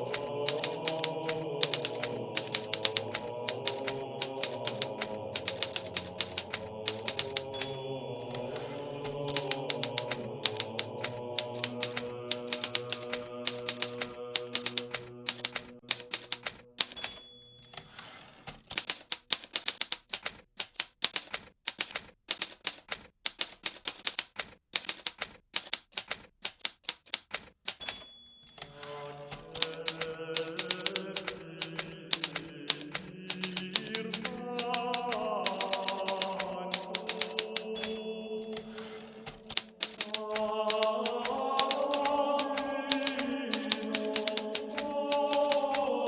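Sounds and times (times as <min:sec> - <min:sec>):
typewriter key strikes: 0:00.0 - 0:45.9
typewriter carriage return: 0:00.0 - 0:46.0
typewriter bell ringing: 0:00.1 - 0:01.0, 0:01.6 - 0:10.8, 0:11.4 - 0:19.8, 0:27.7 - 0:30.9, 0:31.7 - 0:42.0, 0:42.9 - 0:44.6.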